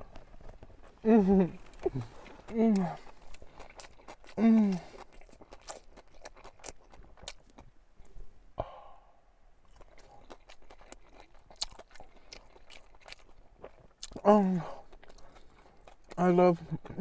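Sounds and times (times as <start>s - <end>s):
man chewing sandwich: 0.0s - 8.2s, 9.6s - 17.0s
breathy exhale: 8.6s - 9.2s.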